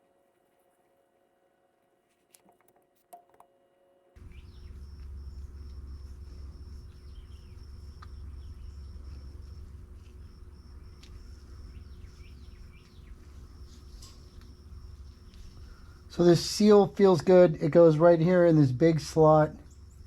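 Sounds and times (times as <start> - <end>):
low rumble: 4.2 - 16.6.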